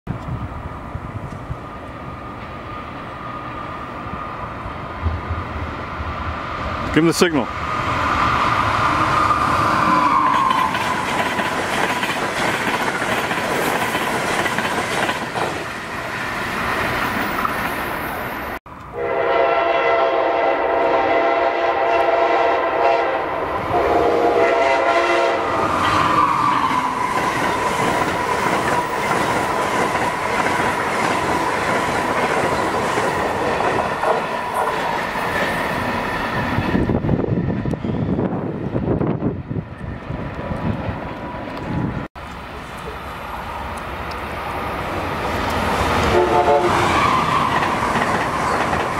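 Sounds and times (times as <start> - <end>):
train wheels clattering: 10.3 - 15.9, 45.4 - 48.9
train chime horn: 19.0 - 25.5, 46.1 - 46.9.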